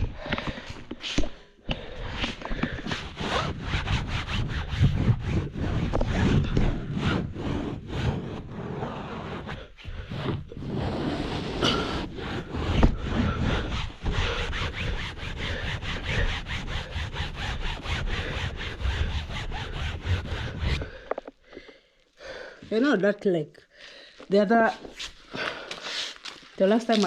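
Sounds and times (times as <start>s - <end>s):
wet cloth scrubbing a chair: 2.9s - 21.0s.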